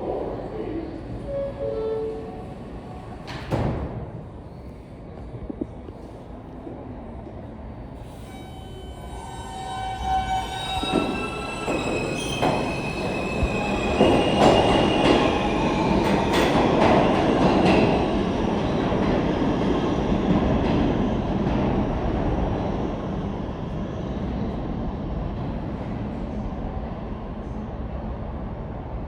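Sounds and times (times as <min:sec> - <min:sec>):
subway train rumble: 0:00.0 - 0:29.0
train wheels squealing: 0:08.1 - 0:17.3.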